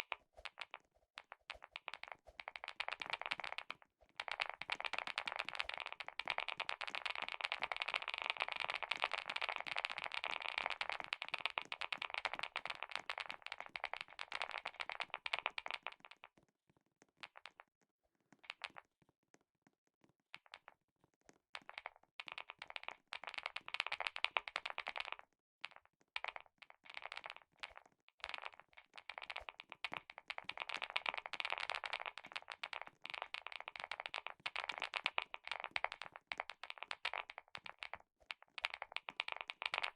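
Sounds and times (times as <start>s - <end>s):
typing on a clicky keyboard: 27.0s - 39.9s.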